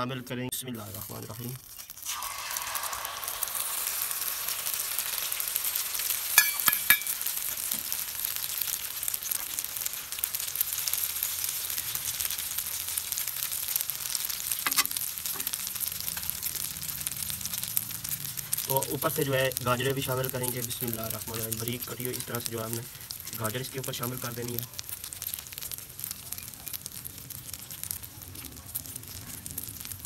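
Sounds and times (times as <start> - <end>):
omelette sizzling on a griddle: 0.0 - 30.0
steel utensil clinking on metal: 6.4 - 7.2.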